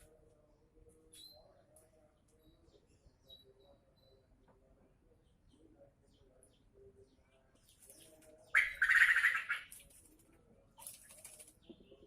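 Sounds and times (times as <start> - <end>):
bird harsh call: 8.6 - 9.7.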